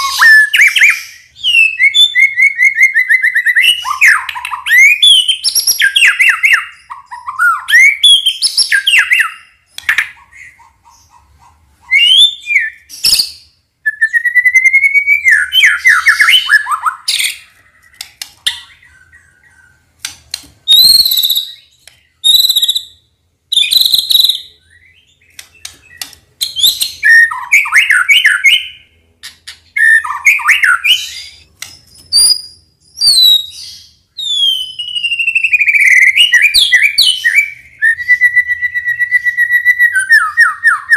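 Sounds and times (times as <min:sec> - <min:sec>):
bird singing whistled notes: 0:00.0 - 0:09.6, 0:11.9 - 0:17.5, 0:20.7 - 0:28.9, 0:29.8 - 0:40.9.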